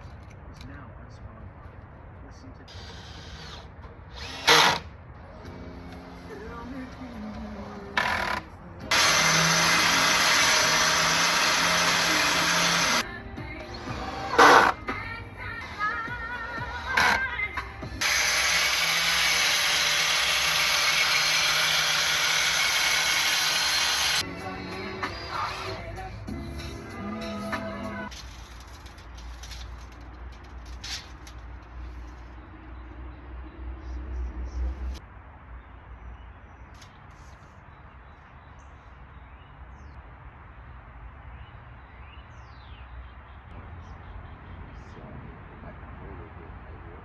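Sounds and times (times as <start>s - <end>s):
power tool running: 8.0s - 13.0s, 18.0s - 24.2s.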